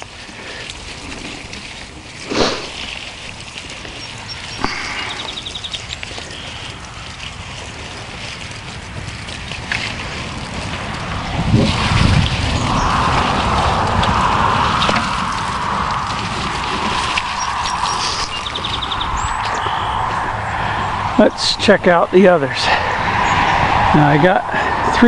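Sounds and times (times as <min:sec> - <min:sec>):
liquid pouring and splashing: 0:00.0 - 0:19.8
wind on microphone: 0:00.0 - 0:25.0.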